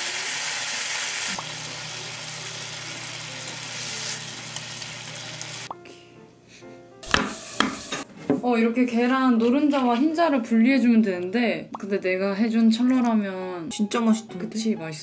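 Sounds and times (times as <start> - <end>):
meat sizzling in a frying pan: 0.0 - 5.7.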